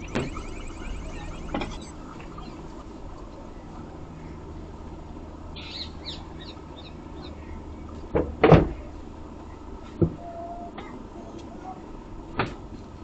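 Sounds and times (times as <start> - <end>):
faint chirps: 0.0 - 2.8
steady low hum: 0.0 - 2.8.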